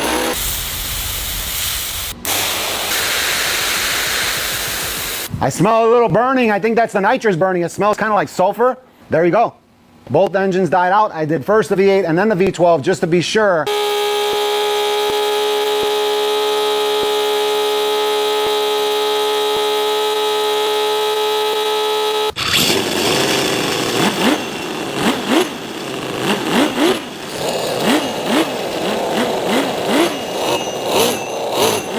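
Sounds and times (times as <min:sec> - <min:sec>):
engine humming and revving: 0:00.0 - 0:00.5, 0:13.7 - 0:31.9.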